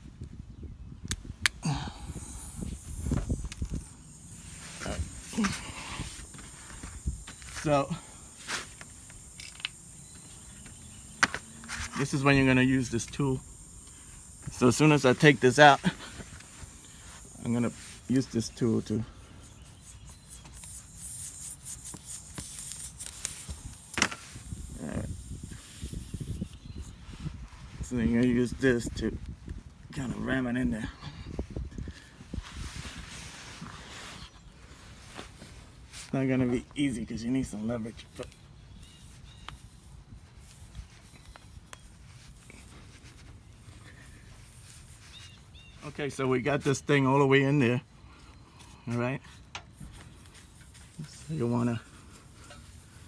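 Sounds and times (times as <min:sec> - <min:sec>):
hand tool light clicks and rubbing: 0:01.1 - 0:26.0, 0:38.0 - 0:45.5, 0:48.6 - 0:53.0
faint bird chirps: 0:09.2 - 0:14.4, 0:18.0 - 0:20.8, 0:38.0 - 0:39.9, 0:43.5 - 0:46.0.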